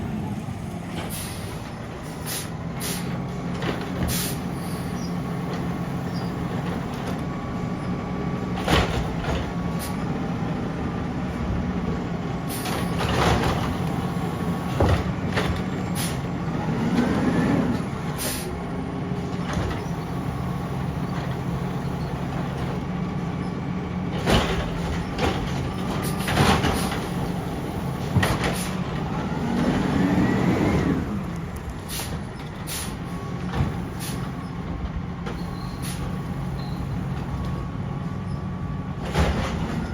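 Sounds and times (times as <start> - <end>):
diesel engine running: 0.0 - 39.9
hydraulics and metal clanking: 0.0 - 39.9
air brake hiss: 1.1 - 1.6, 2.2 - 3.2, 4.1 - 4.9, 12.5 - 12.8, 16.0 - 16.2, 18.2 - 18.6, 31.9 - 33.0, 34.0 - 34.3, 35.7 - 36.1.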